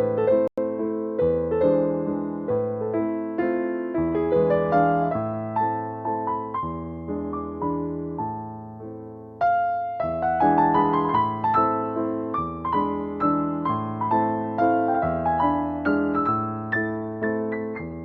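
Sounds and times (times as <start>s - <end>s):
electric piano music: 0.0s - 18.0s.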